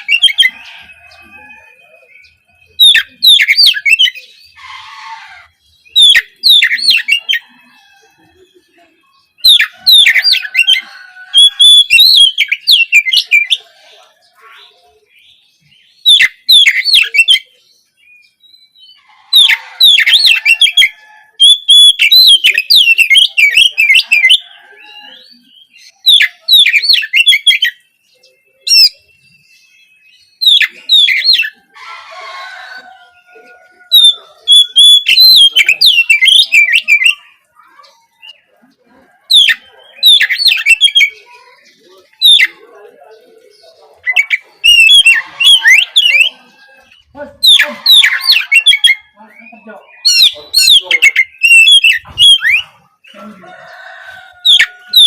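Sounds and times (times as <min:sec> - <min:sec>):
bird singing whistled phrases: 0:21.4 - 0:24.4, 0:44.0 - 0:46.5, 0:47.4 - 0:52.8.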